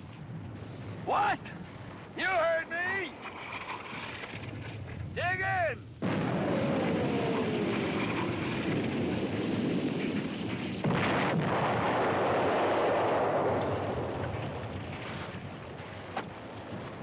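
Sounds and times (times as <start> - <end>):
artillery shells bursting: 6.0 - 17.0.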